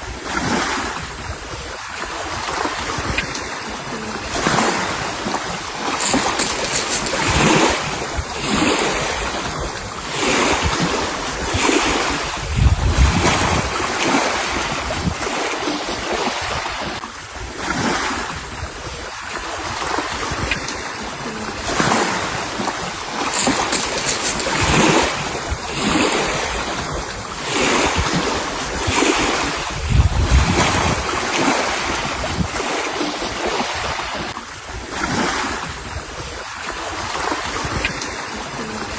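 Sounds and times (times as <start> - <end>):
sea waves washing: 0.0 - 38.9
wind gusting on microphone: 0.0 - 38.9.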